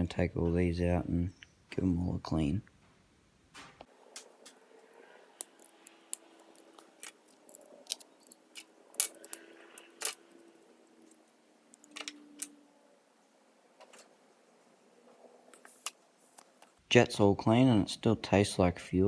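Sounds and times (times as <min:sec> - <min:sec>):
small metal parts clinking: 0:05.4 - 0:12.6.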